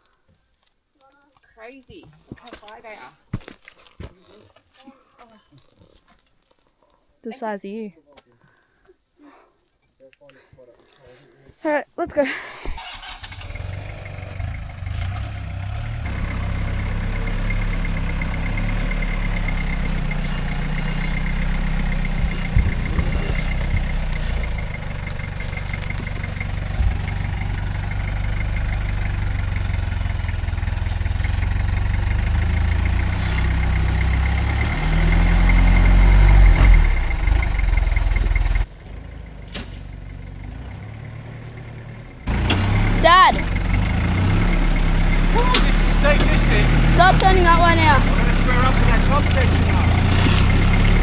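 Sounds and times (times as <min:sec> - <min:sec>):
truck engine climbing over rocks: 0:13.0 - 0:51.0.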